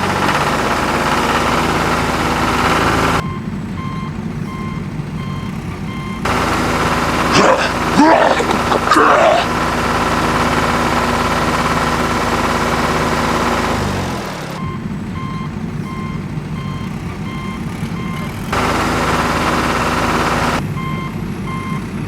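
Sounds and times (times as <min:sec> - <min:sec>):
tractor engine running: 0:00.0 - 0:22.0
reversing alarm beeping: 0:01.4 - 0:09.2, 0:12.9 - 0:21.9.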